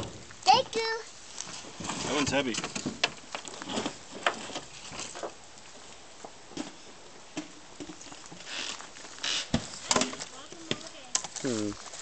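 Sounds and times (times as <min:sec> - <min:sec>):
rustling: 0:00.0 - 0:12.0
firewood knocking on wood: 0:09.4 - 0:11.4.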